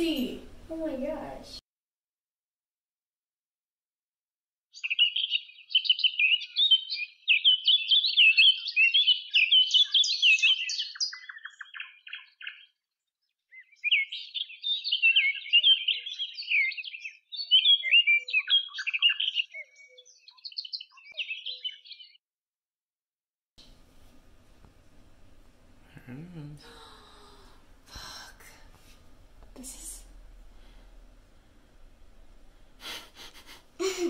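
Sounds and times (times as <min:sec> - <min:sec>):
songbirds chirping and twittering: 0:04.8 - 0:22.2.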